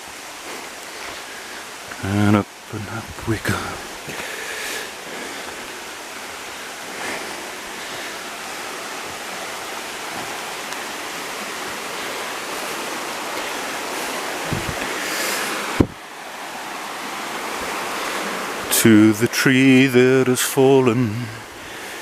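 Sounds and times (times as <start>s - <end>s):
running water rushing: 0.0s - 22.0s
low bumps: 14.4s - 14.9s, 15.7s - 16.0s.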